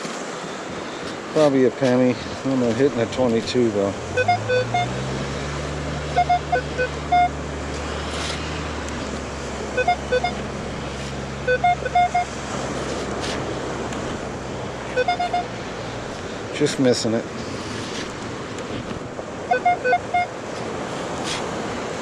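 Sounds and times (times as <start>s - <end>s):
metal detector beeps: 4.2s - 4.9s, 6.2s - 7.3s, 9.8s - 10.4s, 11.4s - 12.3s, 14.9s - 15.5s, 19.5s - 20.3s.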